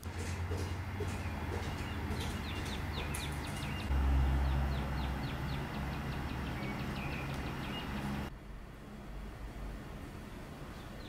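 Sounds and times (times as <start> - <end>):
songbirds chirping: 0.0 - 8.3.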